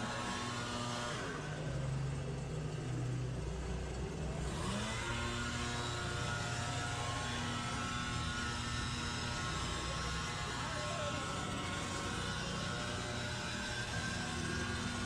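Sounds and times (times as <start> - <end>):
power equipment engine revving: 3.8 - 15.0.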